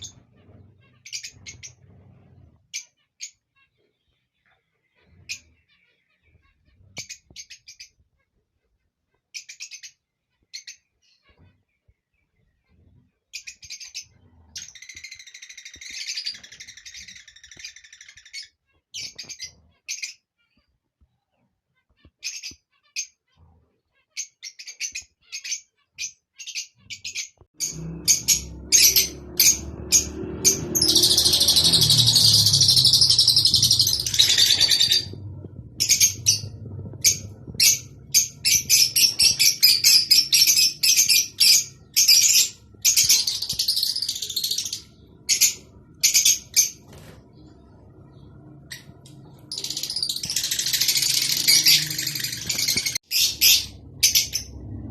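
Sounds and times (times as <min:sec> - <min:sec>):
lovebirds chirping: 0:00.0 - 0:54.9
low background rumble: 0:27.6 - 0:54.9.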